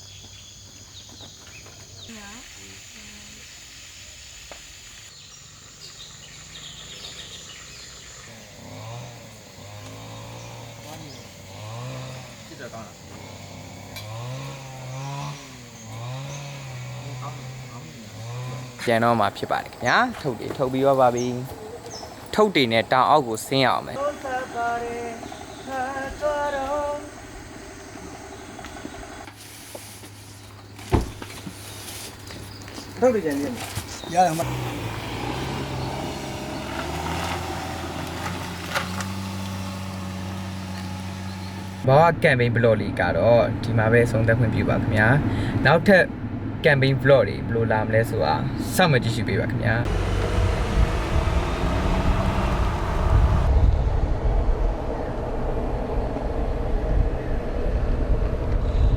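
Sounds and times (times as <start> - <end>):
high insect drone: 0.0 - 29.3, 49.9 - 53.5
bird chirps: 4.9 - 8.6
person sing-song voice: 23.8 - 27.2.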